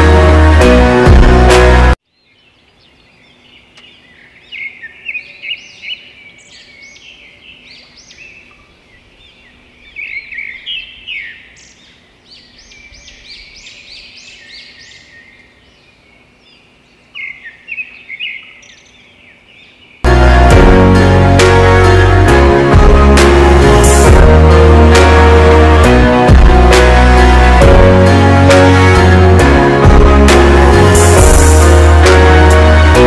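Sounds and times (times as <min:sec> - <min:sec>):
small birds chirping and twittering: 0:02.0 - 0:20.1.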